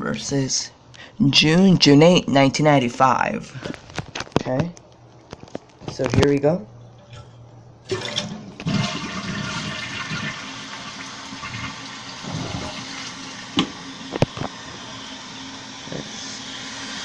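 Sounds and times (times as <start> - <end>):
toilet flushing: 7.0 - 17.0.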